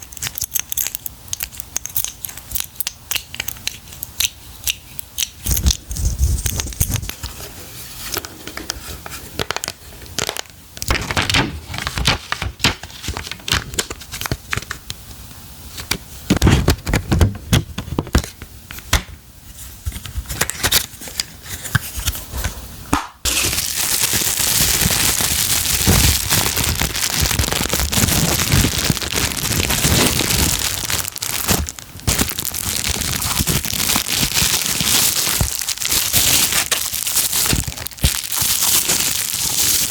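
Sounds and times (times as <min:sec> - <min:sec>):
packaging crinkling and tearing: 0:00.0 - 0:04.3, 0:09.4 - 0:14.8, 0:23.3 - 0:39.9.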